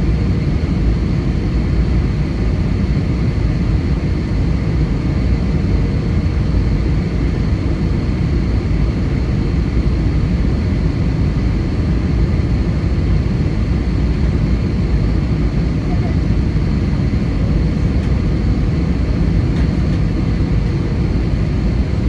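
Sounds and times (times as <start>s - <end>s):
engine and airflow rumble: 0.0s - 22.0s.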